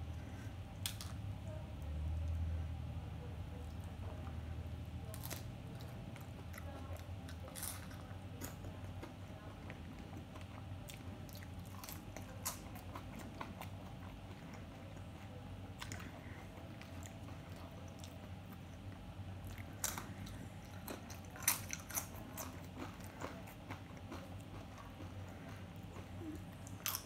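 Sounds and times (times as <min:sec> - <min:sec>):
low steady hum: 0:00.0 - 0:27.0
chips crunching: 0:19.4 - 0:27.0.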